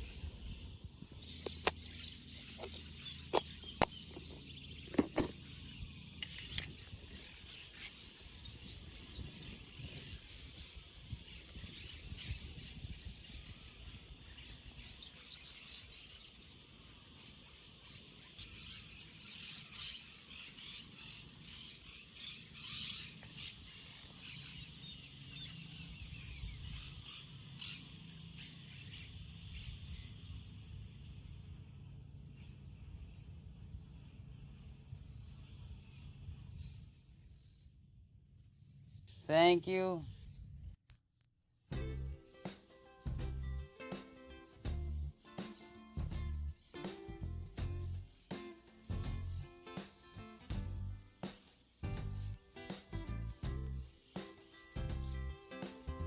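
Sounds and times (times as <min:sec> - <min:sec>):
bird chirps: 0:00.0 - 0:31.4
sharp clicks: 0:01.4 - 0:01.9, 0:06.2 - 0:06.9
high-pitched insect chorus: 0:41.8 - 0:56.0.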